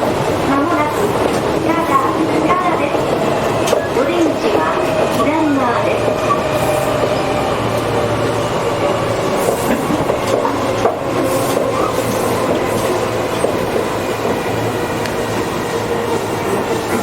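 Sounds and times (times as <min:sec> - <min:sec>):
train motor hum: 0:00.0 - 0:17.0
train wheel and motor rumble: 0:00.0 - 0:17.0
wheels clicking over rail joints: 0:08.8 - 0:15.4.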